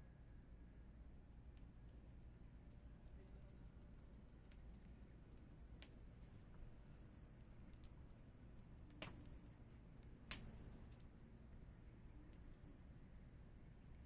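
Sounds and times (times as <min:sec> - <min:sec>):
wood fire crackling: 0:01.6 - 0:11.6
fire popping: 0:07.4 - 0:11.1.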